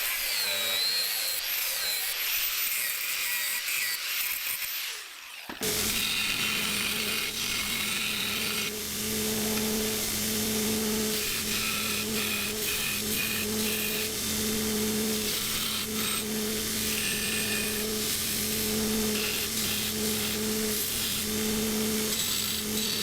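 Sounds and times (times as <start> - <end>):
power tool whining on steel: 0.0 - 23.0
low motor hum: 5.6 - 23.0.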